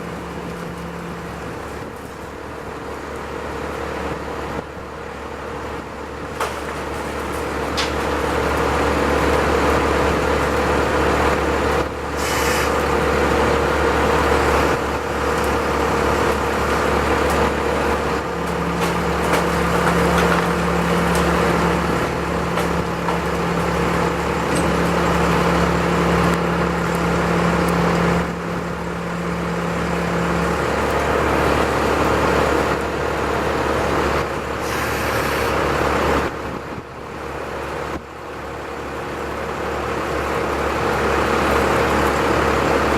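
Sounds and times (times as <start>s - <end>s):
large engine running under load: 0.0s - 42.9s.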